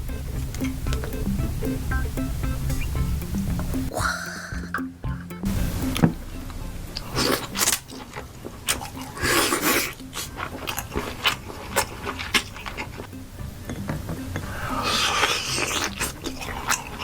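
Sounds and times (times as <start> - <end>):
chewing: 7.0 - 17.0.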